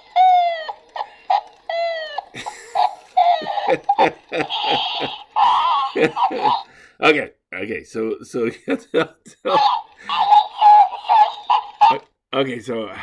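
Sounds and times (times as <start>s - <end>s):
parrot squawking: 0.0s - 6.7s, 9.5s - 12.0s.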